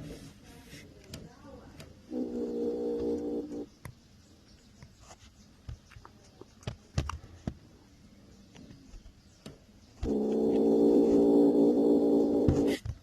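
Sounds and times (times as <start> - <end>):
faint taps and scuffs: 4.7 - 7.6.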